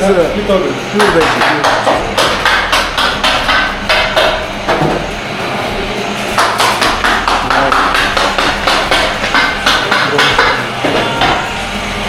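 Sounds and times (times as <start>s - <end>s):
rapid sharp knocks: 0.9s - 5.1s, 6.3s - 11.4s.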